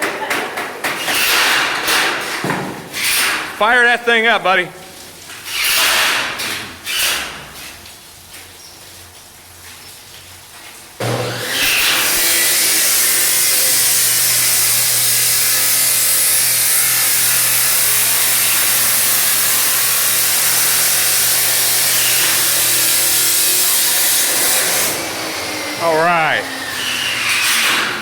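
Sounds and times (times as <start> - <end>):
power saw cutting wood: 0.8 - 2.2, 5.5 - 7.4, 11.0 - 28.0.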